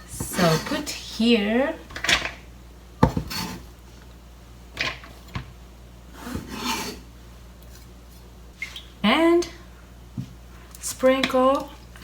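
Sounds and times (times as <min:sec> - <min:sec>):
scraping on cutting board: 0:03.0 - 0:03.7, 0:06.1 - 0:07.1.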